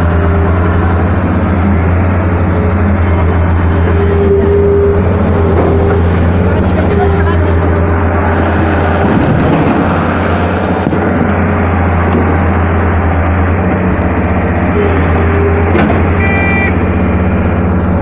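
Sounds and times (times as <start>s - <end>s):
excavator diesel engine running: 0.0s - 18.0s
high beeping tone: 16.2s - 16.8s.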